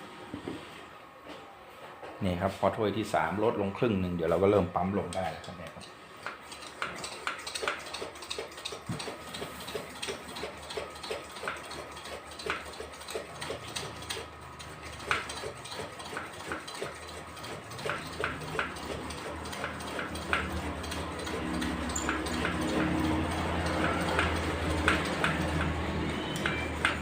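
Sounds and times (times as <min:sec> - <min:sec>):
hand air pump strokes: 0:06.2 - 0:27.0.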